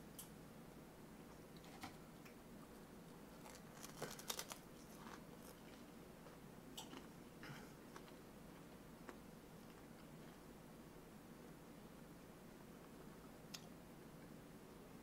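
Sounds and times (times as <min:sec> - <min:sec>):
crunchy rice cake chewing: 0:03.3 - 0:07.2, 0:07.9 - 0:08.2.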